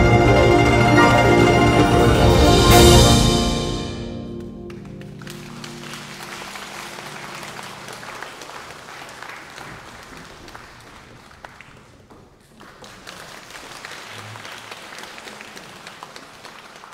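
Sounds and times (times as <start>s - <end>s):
chamber ensemble with guzheng: 0.0s - 4.7s
audience applause: 0.8s - 2.7s, 4.7s - 16.9s.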